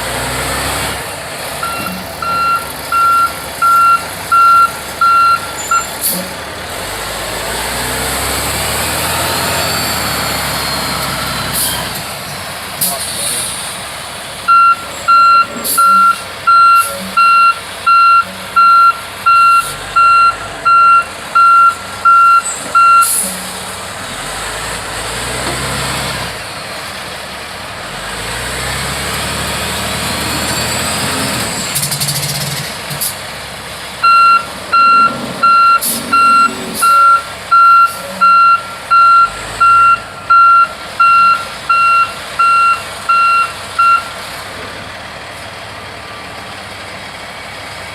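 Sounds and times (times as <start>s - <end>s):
diesel engine revving: 0.0s - 47.9s
truck reversing alarm beeping: 1.6s - 6.4s, 8.4s - 12.0s, 14.4s - 23.7s, 34.0s - 44.4s.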